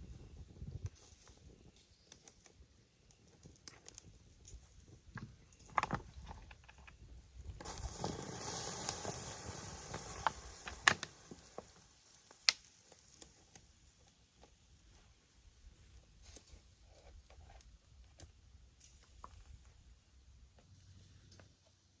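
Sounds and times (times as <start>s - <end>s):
hissing rush: 7.6s - 11.9s.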